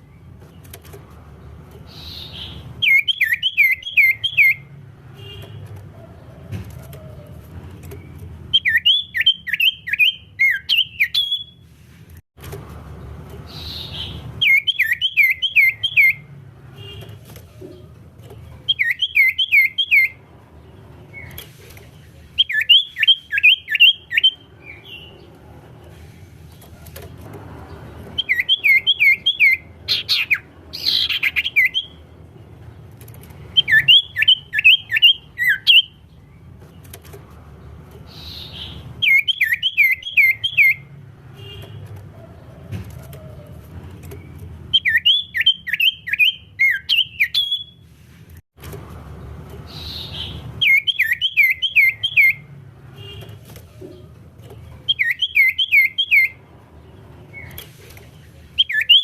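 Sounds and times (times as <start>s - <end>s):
bird singing quick sharp chirps: 1.8s - 4.7s, 7.9s - 11.6s, 13.5s - 16.3s, 22.3s - 25.2s, 28.0s - 32.0s, 33.5s - 36.0s, 38.0s - 40.9s, 49.7s - 52.5s, 54.8s - 56.4s, 58.5s - 59.0s.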